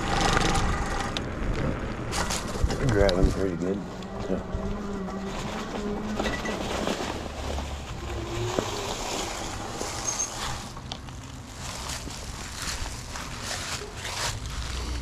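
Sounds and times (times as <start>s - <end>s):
tires rolling on pavement: 0.0s - 15.0s.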